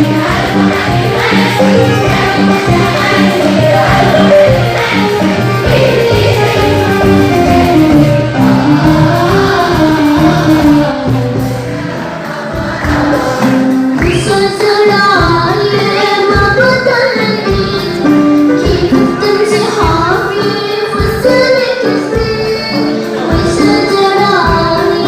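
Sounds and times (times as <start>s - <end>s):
steady beat: 0.0s - 15.6s
choir singing with instruments: 0.0s - 25.0s.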